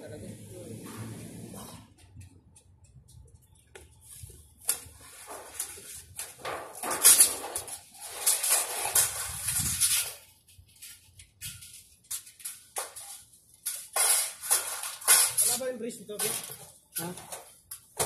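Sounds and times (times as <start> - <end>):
metal scraping on concrete: 5.0 - 11.8, 13.7 - 15.6.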